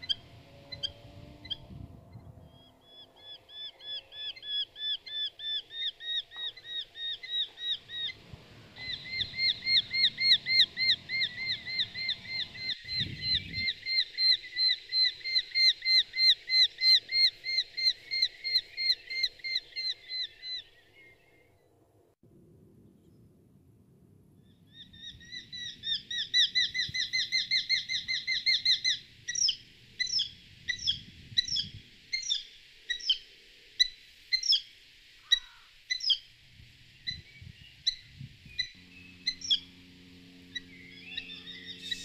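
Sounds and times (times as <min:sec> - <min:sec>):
bird chirping rapidly: 0:02.5 - 0:20.8, 0:37.0 - 0:42.0.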